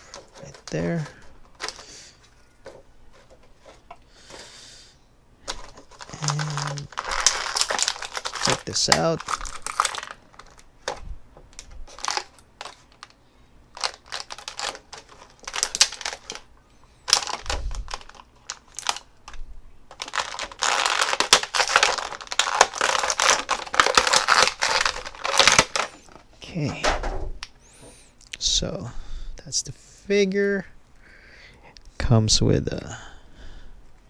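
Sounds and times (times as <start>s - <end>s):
plastic packaging crinkling: 0.0s - 4.6s, 5.4s - 27.1s.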